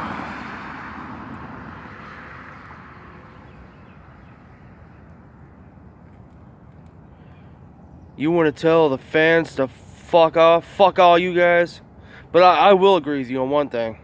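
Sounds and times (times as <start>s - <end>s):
car passing: 0.0s - 8.0s
low outdoor background hum: 0.8s - 14.0s.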